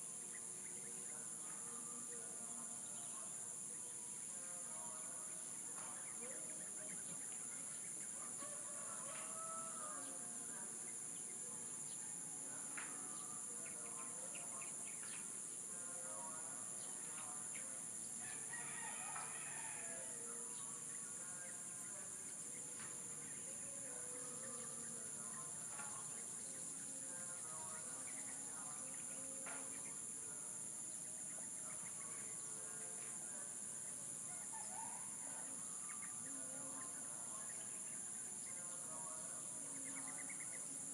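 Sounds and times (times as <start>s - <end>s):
high insect drone: 0.0s - 40.9s
roosters crowing: 8.2s - 10.4s, 18.2s - 20.4s.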